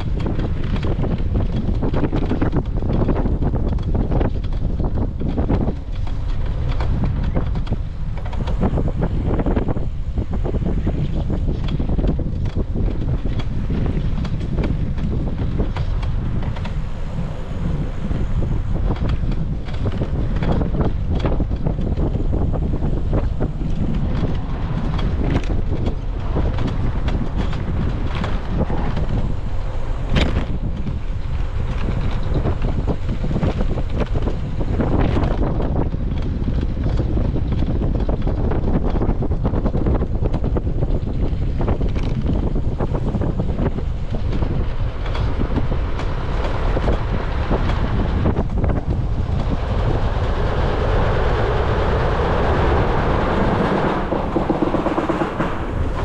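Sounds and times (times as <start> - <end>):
small clicks and rattles: 0.0 - 9.8, 30.0 - 50.1
wind buffeting microphone: 0.0 - 56.0.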